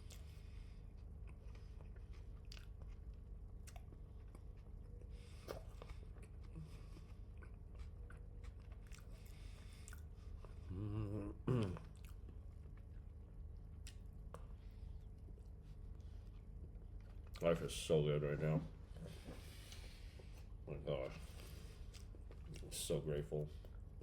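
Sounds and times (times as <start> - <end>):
person chewing food: 0.0 - 17.4, 18.9 - 24.0
person humming: 10.7 - 11.8.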